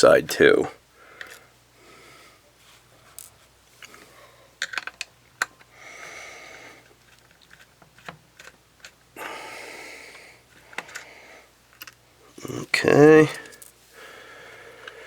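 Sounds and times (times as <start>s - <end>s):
person breathing: 0.9s - 2.5s, 3.8s - 4.6s, 5.7s - 6.9s, 9.2s - 11.6s, 13.4s - 15.0s
small tools clicking on plastic: 4.6s - 5.7s, 6.8s - 9.0s, 10.5s - 11.1s, 11.7s - 12.0s.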